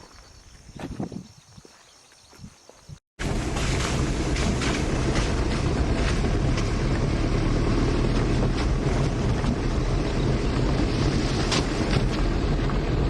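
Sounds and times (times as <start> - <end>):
rattles and knocks from vehicle: 3.2 - 13.0
vehicle engine rumble: 3.2 - 13.0.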